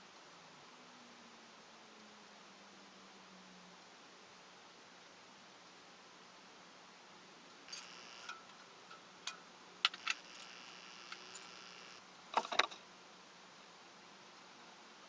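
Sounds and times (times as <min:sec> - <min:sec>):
metal tools clinking: 0:07.7 - 0:12.8.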